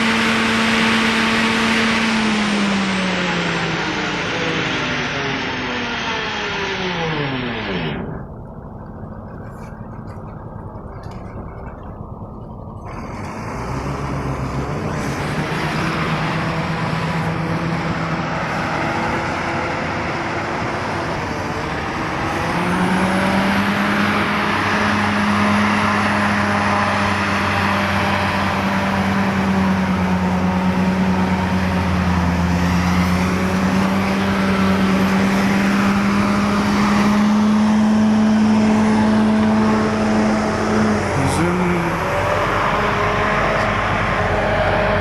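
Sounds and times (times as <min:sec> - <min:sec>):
rushing noise: 0:00.0 - 0:11.6, 0:12.4 - 0:45.0
motorcycle engine running: 0:05.2 - 0:13.6.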